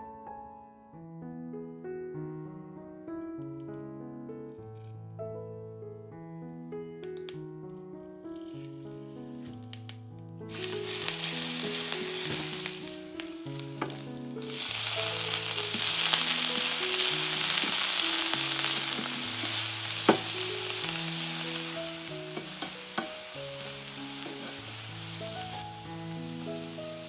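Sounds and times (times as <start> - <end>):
food sizzling in hot oil: 10.5 - 27.0
utensil tapping pan: 13.6 - 24.6.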